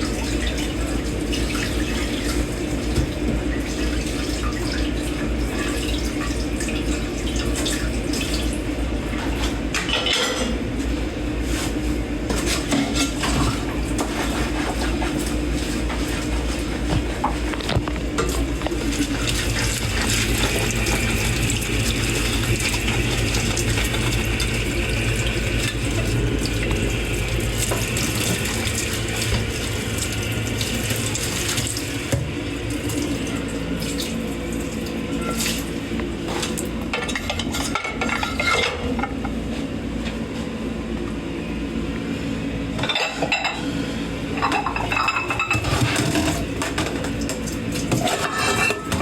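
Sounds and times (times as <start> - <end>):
tap water running: 0.0 - 10.5, 12.2 - 38.5, 44.4 - 49.0
plates and cutlery clinking: 48.0 - 49.0.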